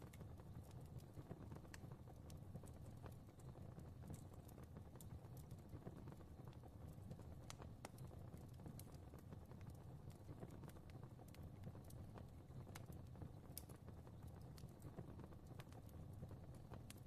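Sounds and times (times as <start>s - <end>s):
fireplace fire crackling: 0.0s - 17.0s.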